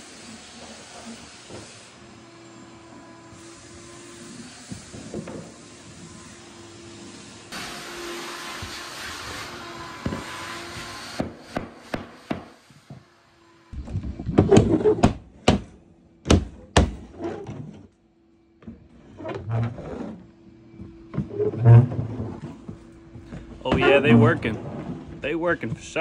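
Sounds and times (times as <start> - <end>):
knocks and thuds from flooring work: 9.8 - 13.1, 13.8 - 17.8.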